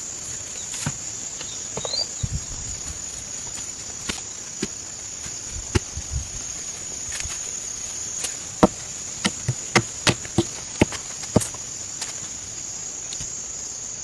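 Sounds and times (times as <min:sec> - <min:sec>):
insects droning: 0:00.0 - 0:14.0
building work knocks and thuds: 0:08.2 - 0:12.2.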